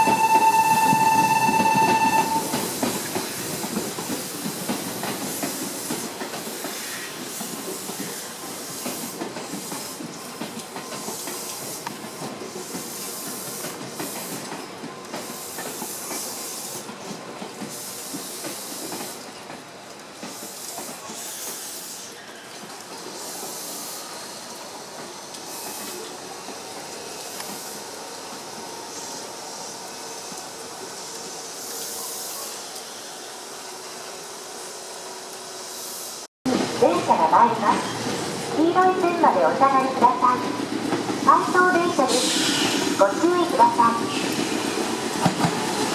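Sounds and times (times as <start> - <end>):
train horn tone: 0.0 - 2.6
train running with hiss: 0.0 - 45.9.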